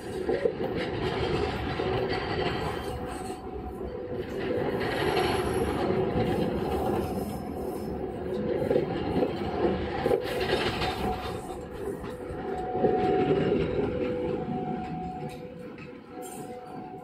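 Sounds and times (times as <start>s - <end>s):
train wheels running on rails: 0.0s - 17.0s
train wheels squealing: 2.2s - 8.8s.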